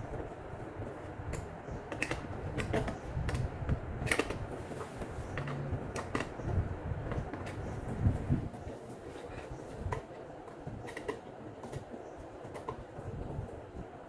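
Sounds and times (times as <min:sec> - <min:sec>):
low background rumble: 0:00.0 - 0:08.8
clicks and creaks of handling: 0:00.1 - 0:13.2.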